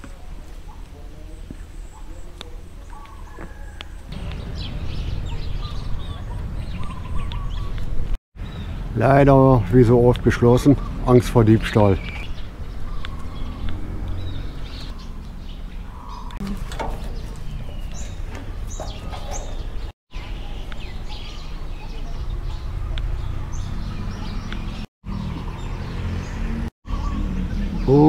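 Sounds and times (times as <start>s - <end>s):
birds chirping: 0.0s - 28.0s
low outdoor rumble: 4.0s - 24.8s.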